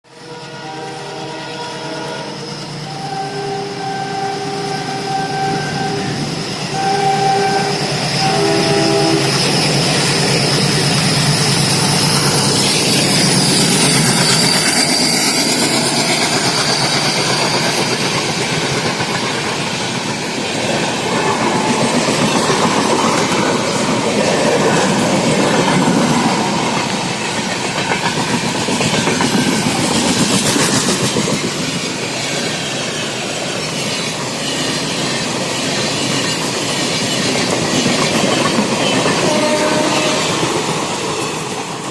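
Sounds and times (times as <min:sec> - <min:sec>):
train horn blasts: 0:00.1 - 0:09.5, 0:39.0 - 0:40.6
train rumbling: 0:00.2 - 0:41.9.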